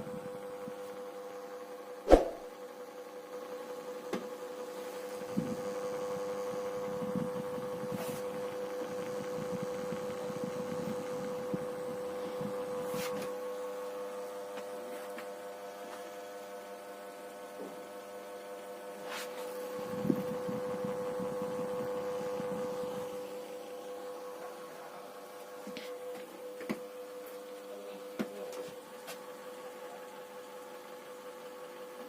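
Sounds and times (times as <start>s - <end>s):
ceiling fan motor humming: 0.0s - 32.0s.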